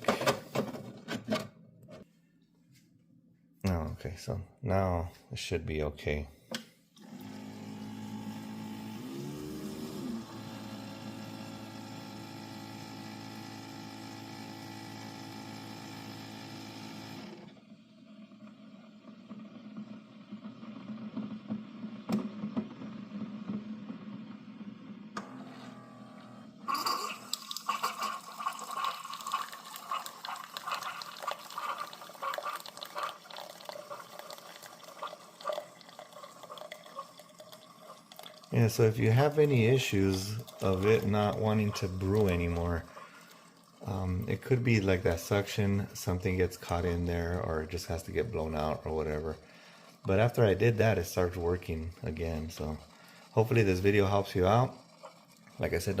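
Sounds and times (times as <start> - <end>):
coffee maker pump humming: 7.0 - 56.0
coffee dripping into cup: 26.7 - 45.3.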